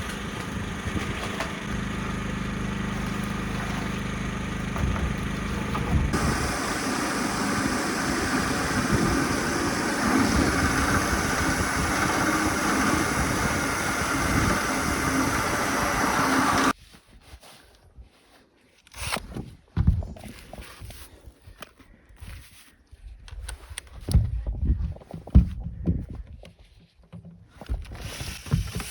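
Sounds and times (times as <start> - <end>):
engine-like mechanical noise: 0.0 - 16.7.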